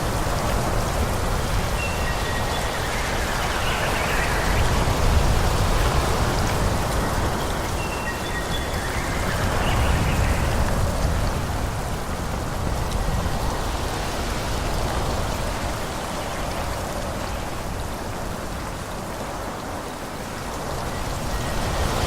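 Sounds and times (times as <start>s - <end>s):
wind rushing through trees: 0.0s - 22.0s.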